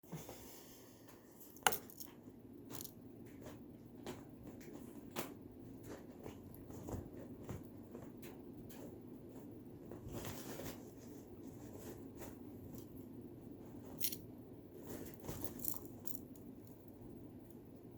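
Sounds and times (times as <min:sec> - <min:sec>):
low room hum: 0:00.0 - 0:17.9.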